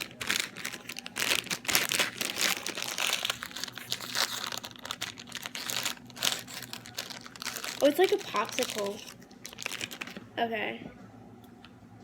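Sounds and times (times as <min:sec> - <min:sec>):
wrapper crinkling and rustling: 0:00.0 - 0:10.2.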